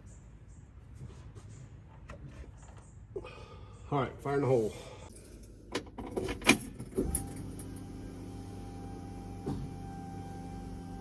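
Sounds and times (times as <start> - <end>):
car engine starting and idling: 5.7 - 11.0.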